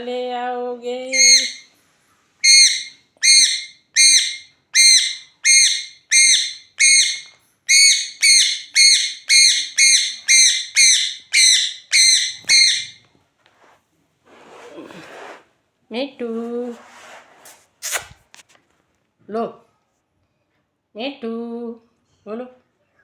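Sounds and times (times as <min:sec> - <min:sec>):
parrot shrill calls: 0:01.1 - 0:01.7, 0:02.4 - 0:13.0.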